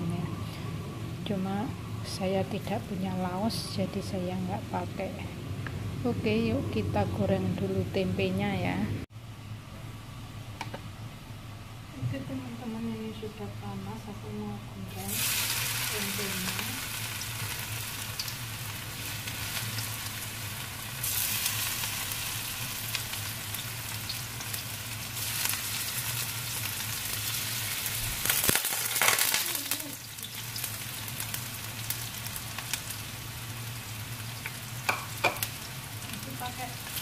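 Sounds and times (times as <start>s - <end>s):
food sizzling in hot oil: 14.8s - 37.0s.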